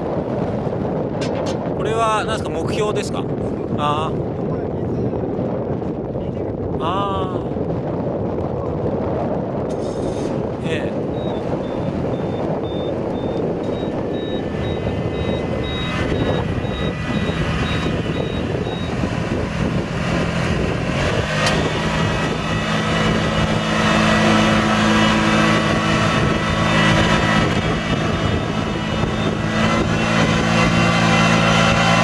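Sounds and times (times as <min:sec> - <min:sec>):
rice transplanter engine running: 0:11.0 - 0:32.0
high beep: 0:11.1 - 0:19.0.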